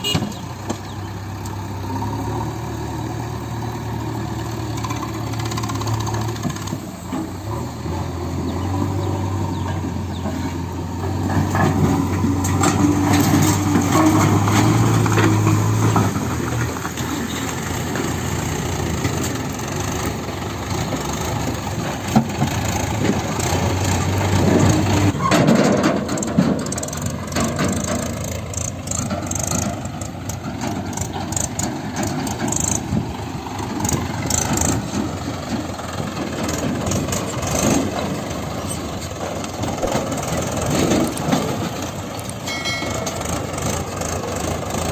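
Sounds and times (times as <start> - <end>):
diesel engine droning: 0.0 - 44.9
rattling clatter: 9.4 - 44.9.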